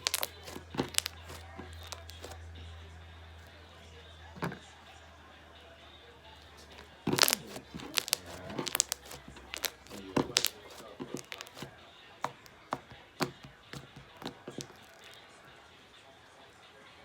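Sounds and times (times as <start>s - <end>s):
slime crackling and popping: 0.0s - 2.4s, 6.6s - 11.7s, 13.2s - 15.2s.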